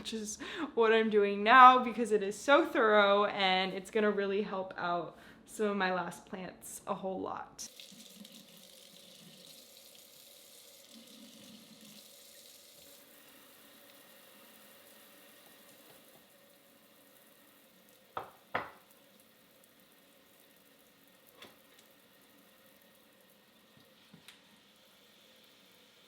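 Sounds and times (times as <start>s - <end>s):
water fizzing in a sink: 7.7s - 26.0s.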